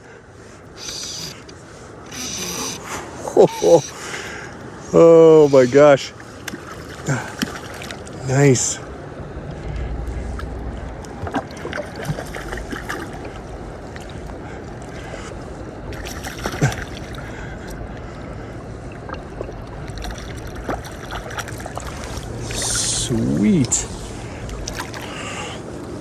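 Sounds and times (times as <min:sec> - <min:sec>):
water washing against boat: 0:00.0 - 0:26.0
small knocks and splashes: 0:06.4 - 0:08.2, 0:15.9 - 0:17.8, 0:18.9 - 0:22.6.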